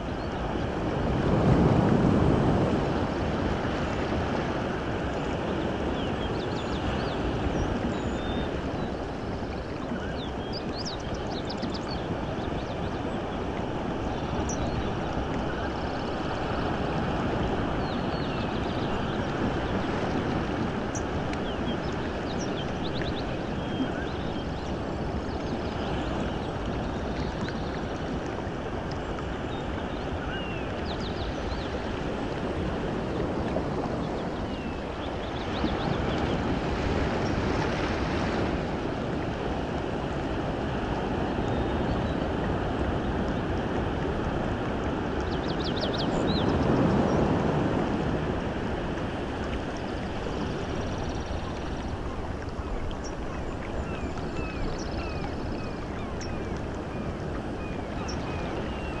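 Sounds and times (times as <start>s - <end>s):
water rushing: 0.0s - 59.0s.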